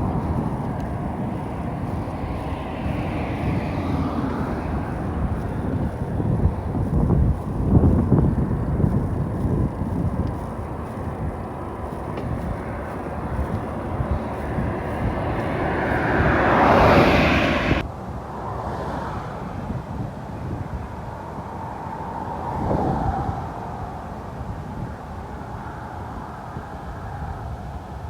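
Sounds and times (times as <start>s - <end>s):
wind buffeting microphone: 0.0s - 17.8s.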